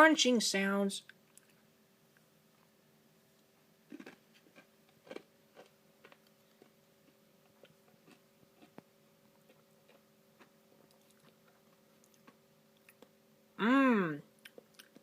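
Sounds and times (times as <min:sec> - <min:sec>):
chewing and crunching: 0:03.9 - 0:13.2, 0:14.4 - 0:15.0.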